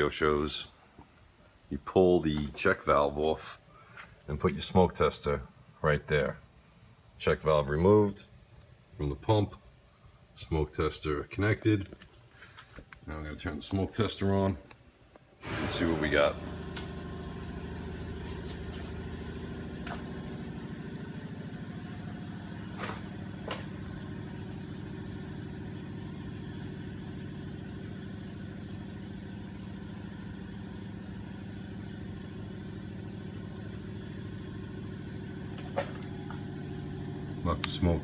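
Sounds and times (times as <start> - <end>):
air pump humming: 15.4 - 25.4.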